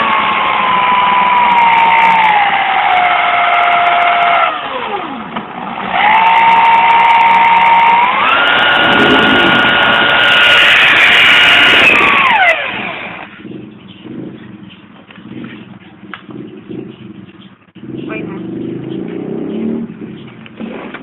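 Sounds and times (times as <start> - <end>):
power tool motor whining: 0.0 - 13.4.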